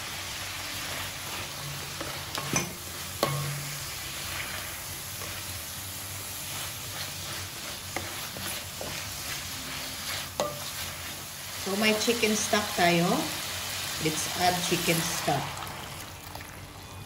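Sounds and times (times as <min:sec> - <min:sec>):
food sizzling in butter: 0:00.0 - 0:16.8
spatula scraping pot: 0:06.5 - 0:11.2.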